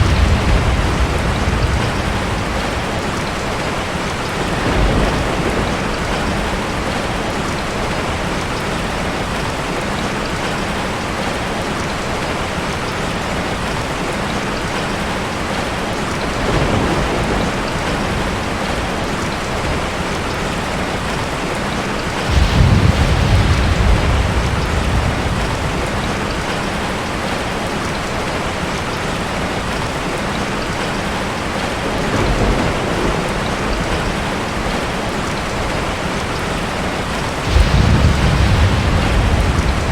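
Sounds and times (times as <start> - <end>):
thunder rumbles: 0.0 - 11.9, 15.5 - 21.5, 22.2 - 28.7, 30.8 - 39.9
heavy rain: 0.0 - 39.9.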